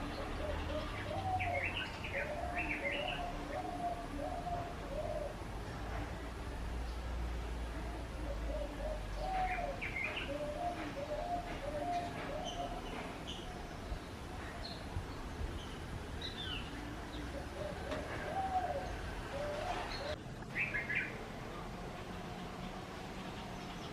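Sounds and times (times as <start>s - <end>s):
birds calling: 0.0s - 5.8s, 7.7s - 23.9s.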